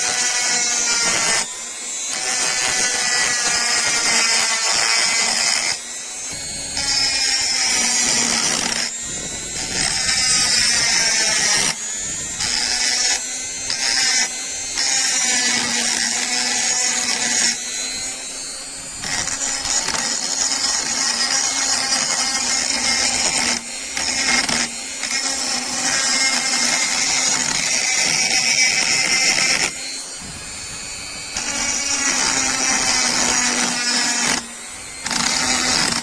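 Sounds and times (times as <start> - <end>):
power tool grinding metal: 0.0 - 36.0.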